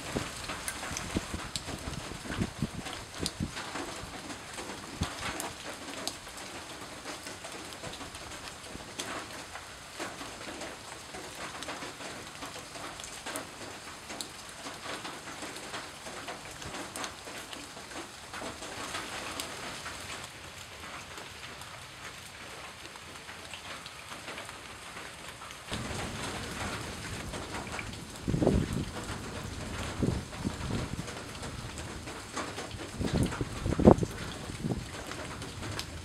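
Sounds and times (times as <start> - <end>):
rain pattering: 0.0 - 36.0.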